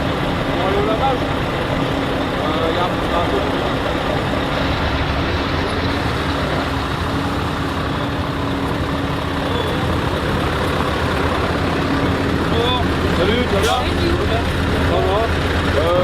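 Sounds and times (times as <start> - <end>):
truck engine running: 0.0 - 16.0.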